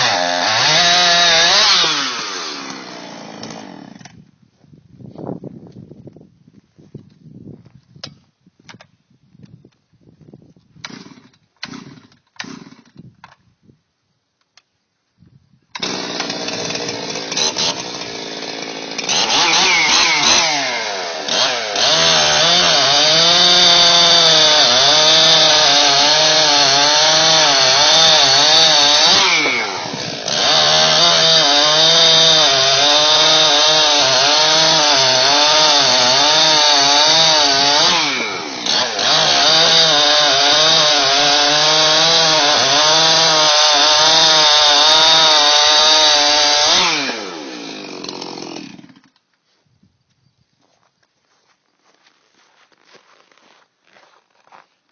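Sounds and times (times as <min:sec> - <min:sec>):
chainsaw cutting wood: 0:00.0 - 0:04.2, 0:10.8 - 0:13.4, 0:15.7 - 0:49.4
rustling: 0:49.4 - 0:54.9.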